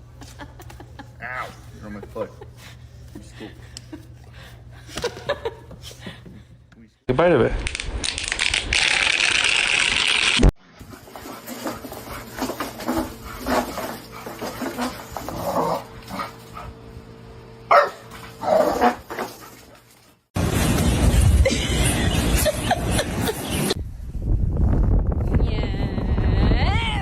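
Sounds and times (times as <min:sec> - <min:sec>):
dog barking: 0:17.7 - 0:18.1.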